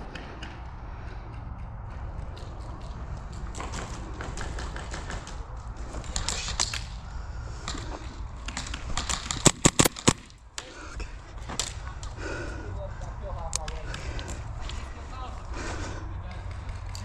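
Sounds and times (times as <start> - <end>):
airsoft gunfire pops: 8.5 - 10.7
burst of loud shots: 9.2 - 10.3.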